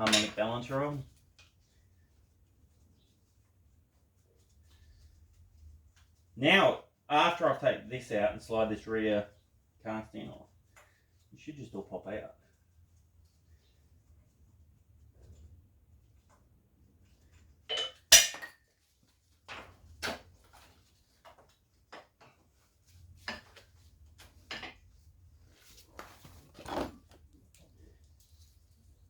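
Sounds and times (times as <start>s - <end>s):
metallic clinks of tools: 17.7s - 18.5s.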